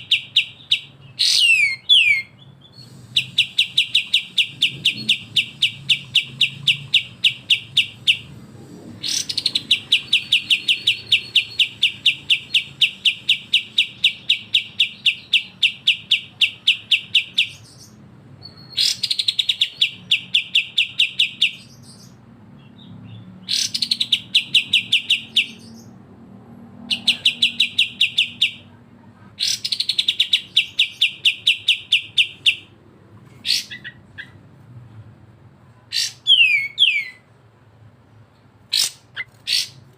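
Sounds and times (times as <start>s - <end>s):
songbird chattering call: 0.0s - 8.3s, 9.0s - 26.0s.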